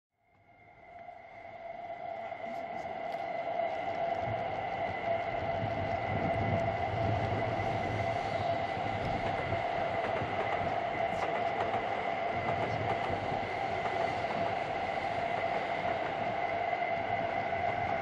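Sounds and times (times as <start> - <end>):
steady whine: 0.2 - 18.0
trains rolling on rails: 0.5 - 18.0.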